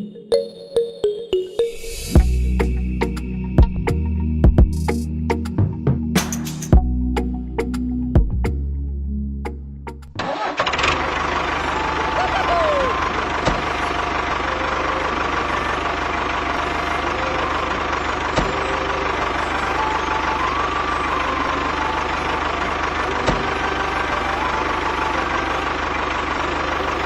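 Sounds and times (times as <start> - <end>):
engine idling: 10.1 - 27.0.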